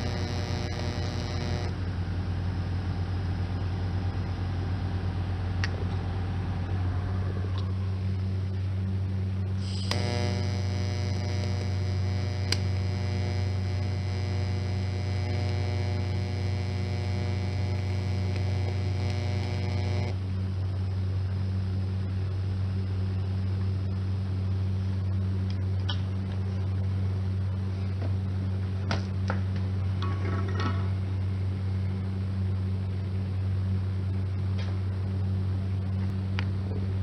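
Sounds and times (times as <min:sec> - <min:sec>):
electric arc buzzing: 0:00.0 - 0:02.0, 0:09.6 - 0:24.0
welding machine humming: 0:00.0 - 0:04.4, 0:09.5 - 0:27.0.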